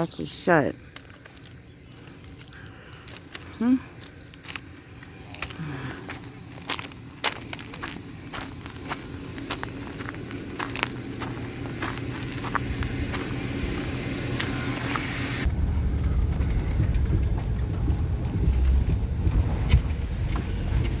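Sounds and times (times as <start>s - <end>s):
van driving rumble: 0.0s - 21.0s
footsteps: 0.8s - 15.4s.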